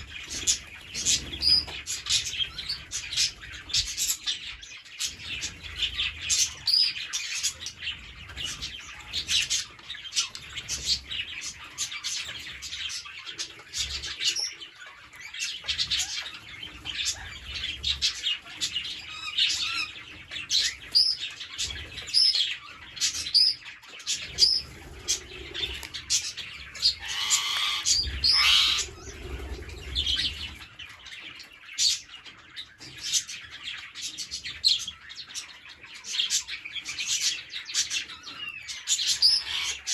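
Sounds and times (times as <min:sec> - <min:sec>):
parrots chattering: 0:24.2 - 0:30.6, 0:38.9 - 0:39.9
harsh parrot squawk: 0:27.0 - 0:28.9, 0:39.2 - 0:39.8.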